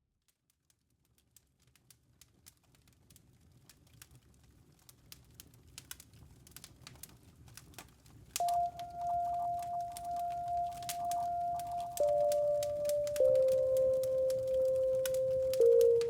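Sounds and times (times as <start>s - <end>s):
campfire crackling and popping: 3.6s - 16.0s
soft background music: 8.4s - 16.0s
steady ringing tone: 8.4s - 16.0s.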